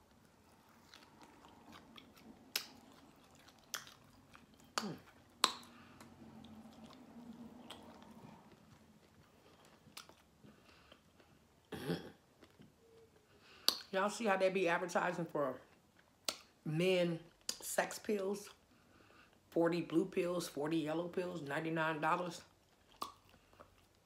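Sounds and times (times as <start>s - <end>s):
person chewing meat: 0.0s - 13.9s, 22.5s - 24.0s
mouth clicks and smacks: 0.9s - 8.7s, 13.5s - 14.0s, 16.2s - 16.6s, 22.8s - 24.0s.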